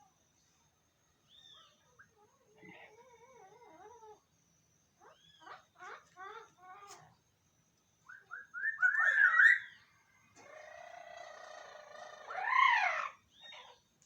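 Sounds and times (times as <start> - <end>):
parrots calling: 8.3 - 9.7, 10.6 - 13.8.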